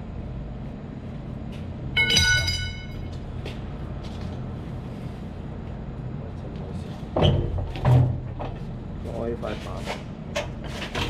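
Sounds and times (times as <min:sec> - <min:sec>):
machinery humming: 0:00.0 - 0:07.2.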